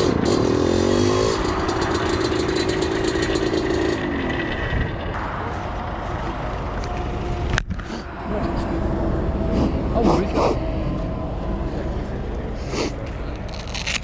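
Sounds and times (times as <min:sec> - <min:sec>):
two-stroke motorbike engine: 0:00.0 - 0:05.2.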